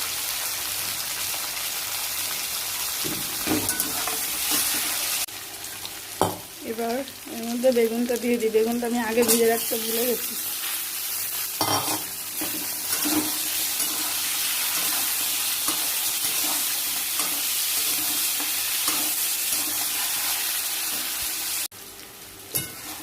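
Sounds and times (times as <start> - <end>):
vegetables sizzling in oil: 0.0 - 23.0
spatula knocking and scraping pan: 11.6 - 21.1.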